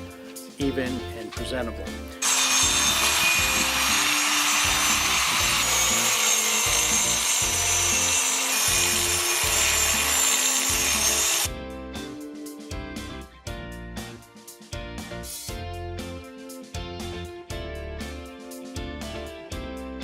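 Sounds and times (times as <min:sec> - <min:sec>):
angle grinder cutting concrete: 0:02.2 - 0:11.5.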